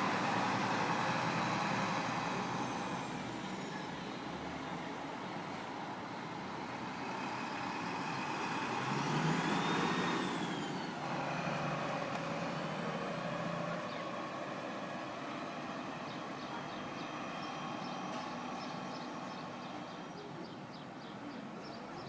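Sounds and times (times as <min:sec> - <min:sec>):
diesel coach engine running: 0:00.0 - 0:22.0
vehicle passing by: 0:06.3 - 0:20.2.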